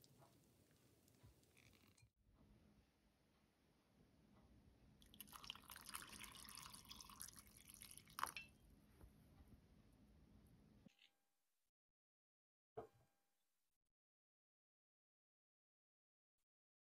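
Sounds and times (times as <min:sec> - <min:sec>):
water trickling: 0:05.0 - 0:08.5.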